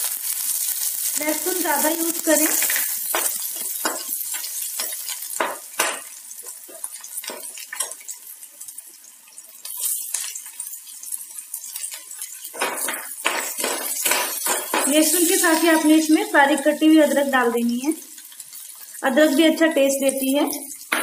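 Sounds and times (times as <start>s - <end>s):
garlic sizzling in hot oil: 0.0s - 21.0s
metal spoon scraping a pan: 11.6s - 16.0s.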